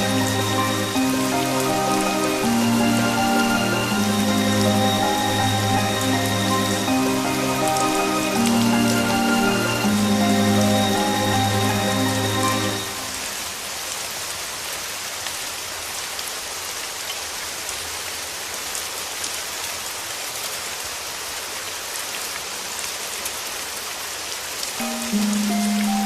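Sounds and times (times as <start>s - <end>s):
soft background music: 0.0s - 13.5s, 24.8s - 26.0s
steady rain falling: 0.0s - 26.0s.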